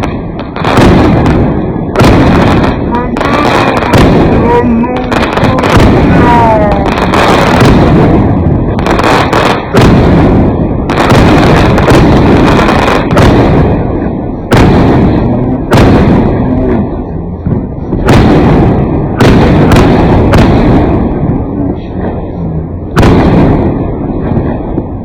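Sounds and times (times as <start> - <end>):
fireworks bangs: 0.0 - 25.0
fireworks crackling and booming: 0.0 - 25.0.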